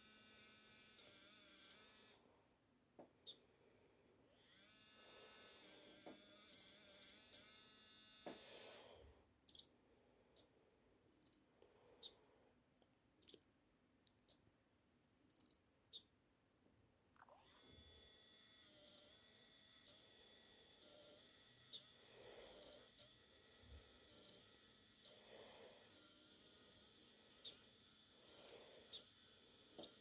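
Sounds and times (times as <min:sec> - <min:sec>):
servo buzzes: 0:00.0 - 0:02.2, 0:04.3 - 0:09.7, 0:17.3 - 0:30.0
small electric motor whining: 0:00.0 - 0:02.2, 0:04.3 - 0:08.9, 0:17.4 - 0:30.0.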